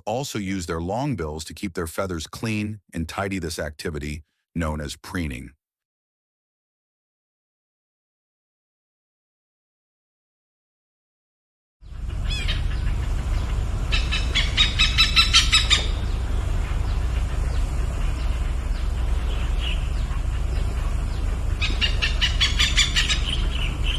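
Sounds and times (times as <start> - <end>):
low rumble: 11.8 - 23.9
bird calling harsh notes: 11.9 - 23.9.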